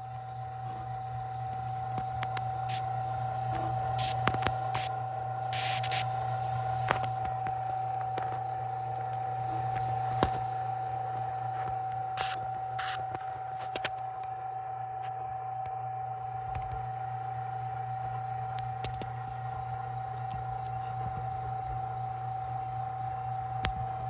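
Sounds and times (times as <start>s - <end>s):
rock tumbler motor hum: 0.0s - 24.0s.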